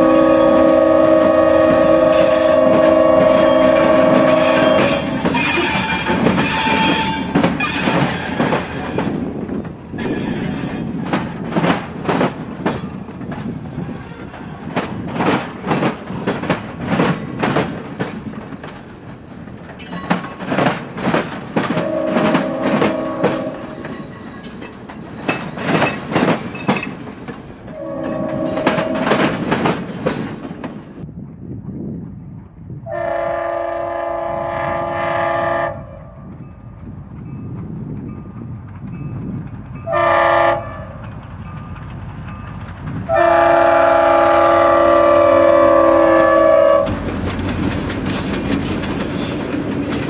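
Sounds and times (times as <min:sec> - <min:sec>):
train horn blasts: 0:00.0 - 0:08.7, 0:21.8 - 0:24.0, 0:27.7 - 0:29.6, 0:32.8 - 0:36.3, 0:39.8 - 0:41.0, 0:43.1 - 0:47.1
train wheels clicking over rail joints: 0:00.0 - 0:31.1, 0:36.3 - 0:50.0.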